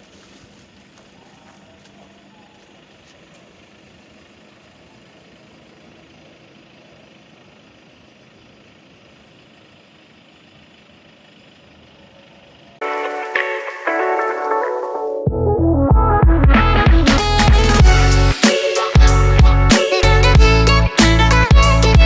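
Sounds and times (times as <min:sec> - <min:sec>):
road traffic: 0:00.0 - 0:14.6, 0:16.6 - 0:22.0
loud music: 0:12.8 - 0:22.0.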